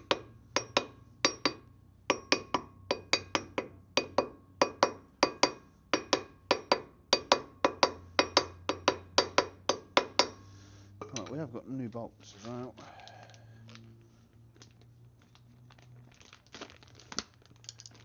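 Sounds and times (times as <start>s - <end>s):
hammer tapping on steel: 0.0s - 10.4s.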